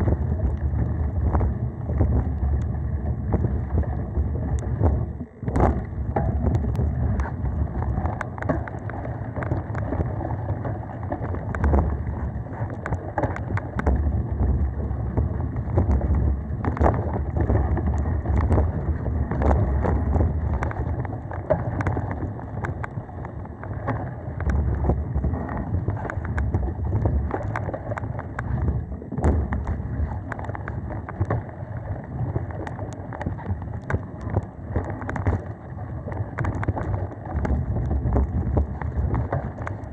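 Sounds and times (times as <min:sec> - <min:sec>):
wind on microphone: 0:00.0 - 0:39.9
bike clicks and rattles: 0:05.7 - 0:31.4.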